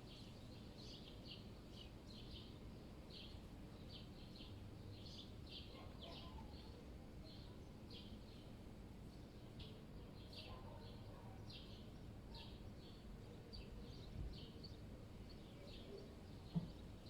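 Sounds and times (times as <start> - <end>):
low city rumble: 0.1 - 17.0
small birds chirping: 9.1 - 17.0.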